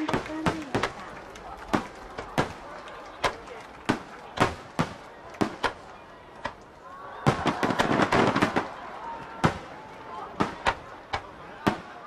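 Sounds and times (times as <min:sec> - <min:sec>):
fireworks bangs: 0:00.0 - 0:06.6, 0:07.2 - 0:12.0
crackling firework bursts: 0:06.6 - 0:08.8.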